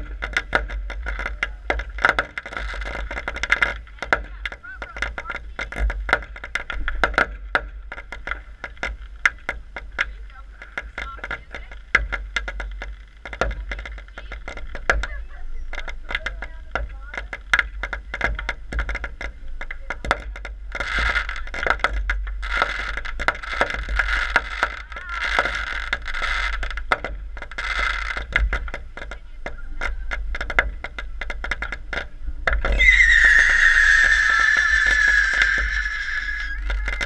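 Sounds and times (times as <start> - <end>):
fireworks crackling and popping: 0.0 - 37.0
fireworks fizzing hiss: 0.0 - 37.0
firework whistle: 32.6 - 37.0.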